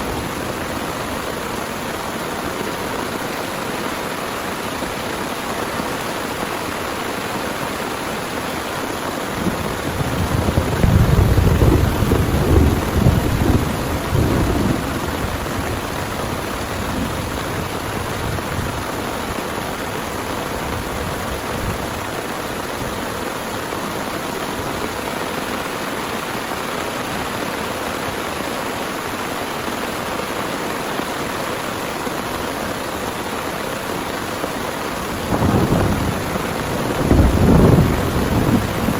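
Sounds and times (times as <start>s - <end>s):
heavy rain pouring: 0.0s - 38.9s
low rumble of thunder: 9.3s - 18.9s, 35.0s - 38.9s.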